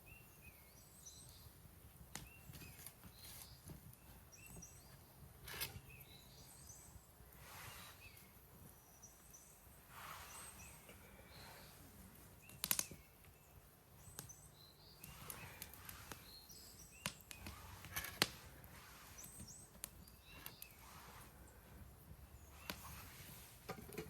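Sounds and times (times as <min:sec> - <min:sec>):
faint hiss: 0:00.0 - 0:24.0
campfire crackling and popping: 0:12.1 - 0:13.3, 0:13.9 - 0:14.4, 0:15.0 - 0:20.9, 0:22.5 - 0:24.0.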